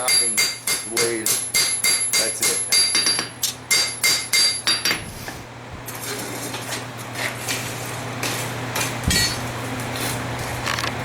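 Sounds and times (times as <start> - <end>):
hammer ringing on anvil: 0.0 - 5.0
steady background hum: 0.0 - 11.0.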